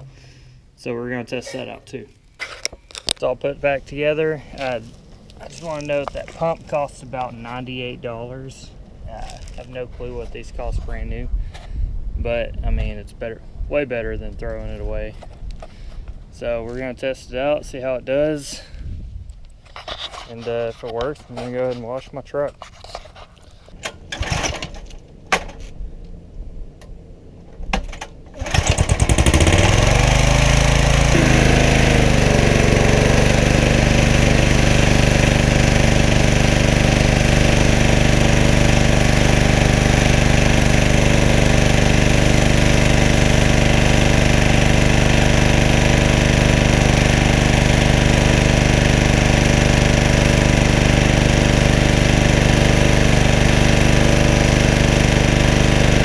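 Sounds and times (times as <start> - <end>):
small engine running: 28.4 - 56.0.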